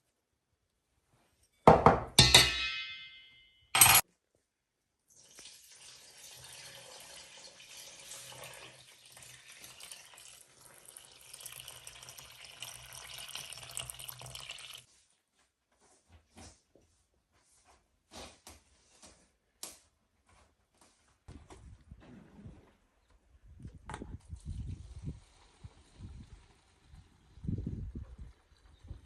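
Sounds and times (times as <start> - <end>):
dish clinking: 2.2 - 4.0
water running from a tap: 5.2 - 14.9.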